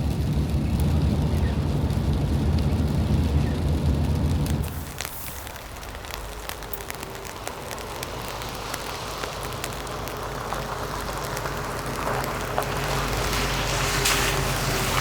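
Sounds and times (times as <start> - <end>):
raindrops ticking on a surface: 0.0 - 15.0
steady rain: 0.0 - 15.0.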